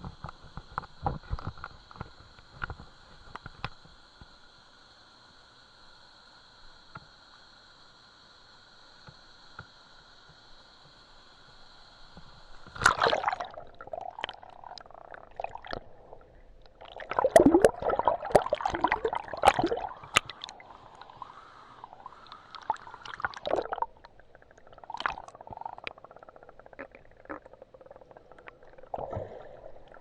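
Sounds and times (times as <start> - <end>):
water splashing and sloshing: 12.6 - 26.0, 28.2 - 30.0.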